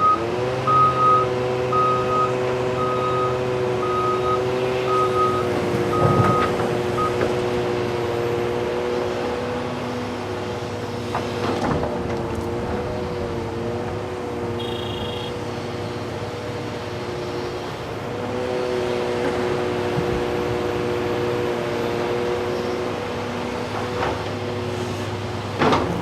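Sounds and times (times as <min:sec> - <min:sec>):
heavy diesel machinery running: 0:00.0 - 0:26.0
short high beep: 0:14.6 - 0:15.4.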